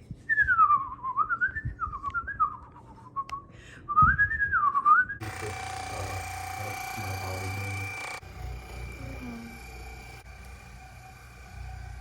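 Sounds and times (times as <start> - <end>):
person whistling a tune: 0.3 - 5.2.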